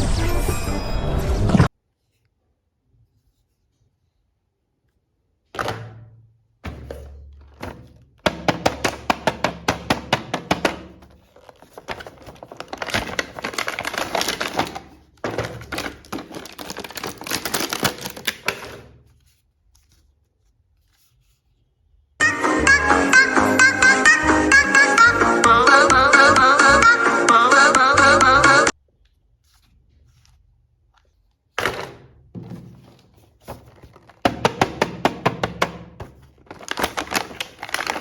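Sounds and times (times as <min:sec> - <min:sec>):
plastic scraping: 0:06.8 - 0:19.4, 0:31.0 - 0:38.0
plastic toys clicking: 0:11.6 - 0:18.7
electronic dance music: 0:22.2 - 0:28.7.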